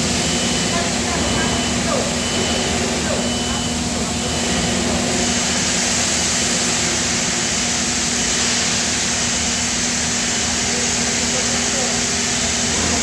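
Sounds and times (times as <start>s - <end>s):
machinery low hum: 0.0s - 9.0s.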